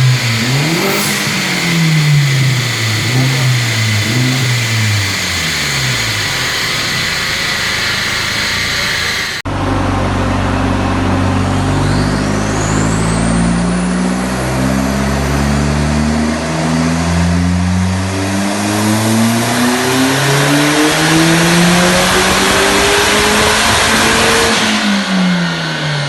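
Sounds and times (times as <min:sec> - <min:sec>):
thin high turbo whistle: 0:00.0 - 0:09.4
turbocharged engine under load: 0:00.0 - 0:26.0.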